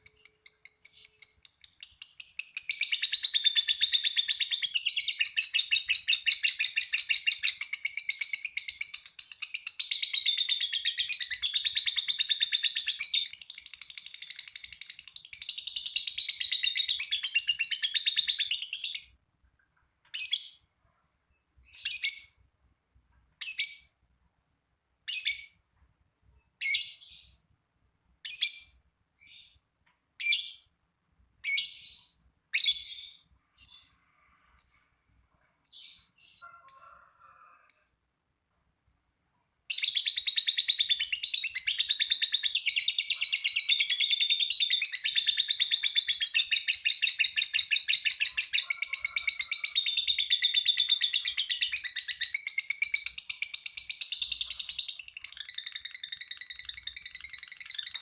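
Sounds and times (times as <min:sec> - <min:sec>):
bird chirps: 0:00.0 - 0:20.7, 0:21.3 - 0:22.4, 0:23.3 - 0:24.0, 0:25.0 - 0:25.6, 0:26.4 - 0:27.5, 0:28.2 - 0:30.7, 0:31.4 - 0:38.0, 0:39.7 - 0:58.0.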